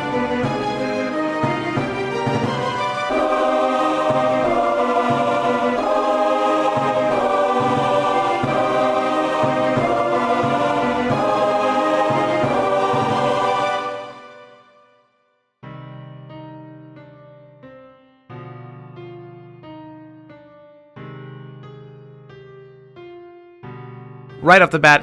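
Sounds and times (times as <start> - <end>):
epic orchestral music: 0.0 - 14.8.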